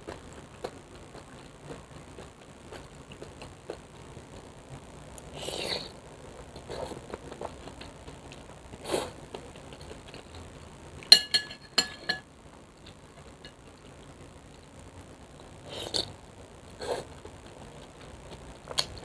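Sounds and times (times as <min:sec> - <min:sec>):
eating noises: 0:00.0 - 0:10.7
utensil clinking against a bowl: 0:11.1 - 0:12.2.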